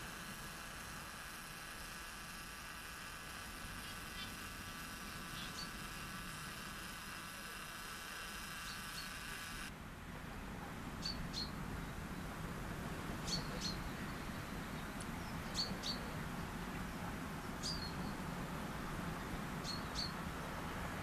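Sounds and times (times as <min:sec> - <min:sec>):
low outdoor rush: 0:00.0 - 0:21.0
small bird chirping: 0:03.4 - 0:09.7, 0:11.0 - 0:12.0, 0:13.2 - 0:18.3, 0:19.2 - 0:20.6.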